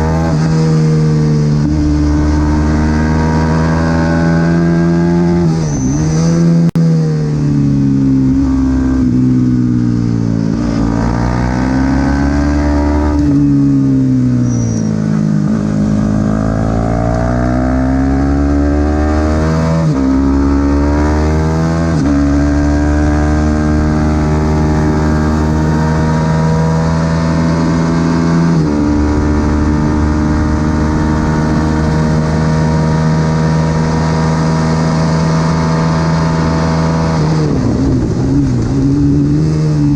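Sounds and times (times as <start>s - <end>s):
motorcycle engine at racing revs: 0.0s - 39.9s.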